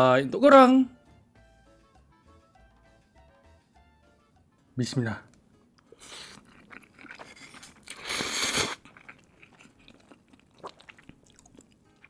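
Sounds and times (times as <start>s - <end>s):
soft wet chewing: 5.3s - 12.0s
person slurping noodles: 6.0s - 11.5s.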